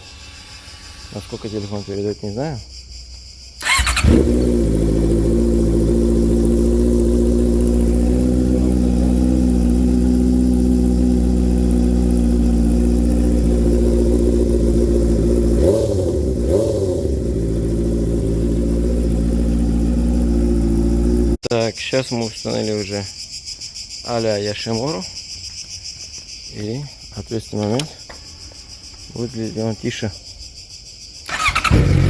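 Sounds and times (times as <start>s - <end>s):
motorcycle engine idling loudly: 3.6s - 21.4s, 31.4s - 32.0s.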